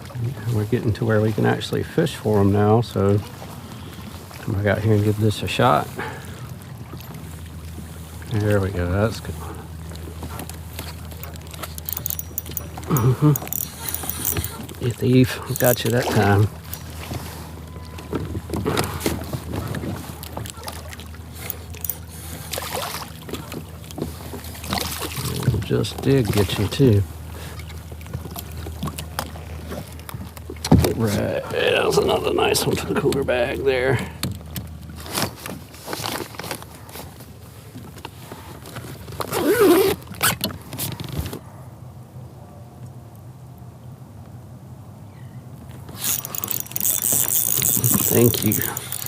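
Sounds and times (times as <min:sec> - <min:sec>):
steady low hum: 0:00.0 - 0:35.0
small water splashes: 0:02.2 - 0:31.5
handling clicks: 0:11.2 - 0:14.8, 0:45.9 - 0:49.0
zipper rasping: 0:11.8 - 0:14.7, 0:39.2 - 0:41.0.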